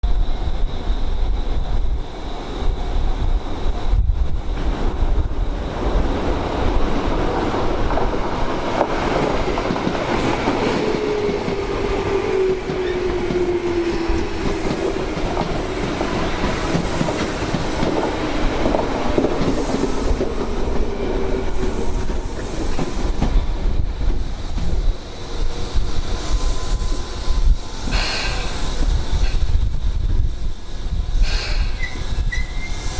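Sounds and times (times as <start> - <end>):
wind buffeting microphone: 0.0 - 32.9
train wheels clattering over rails: 4.6 - 29.7.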